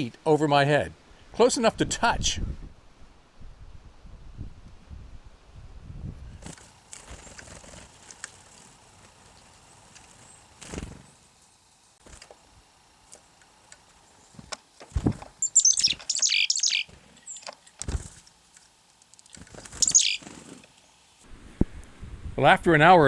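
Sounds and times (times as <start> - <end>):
small birds chattering: 6.4 - 21.2.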